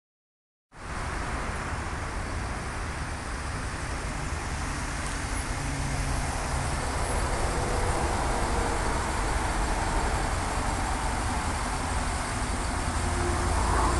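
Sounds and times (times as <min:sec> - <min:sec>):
car engine idling: 0:02.8 - 0:13.9.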